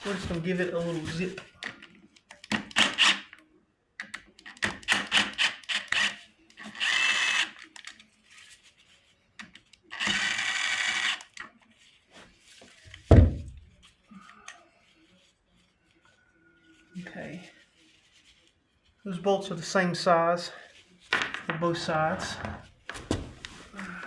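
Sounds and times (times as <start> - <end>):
power drill whirring: 2.7 - 3.3, 4.9 - 7.6, 9.9 - 11.3.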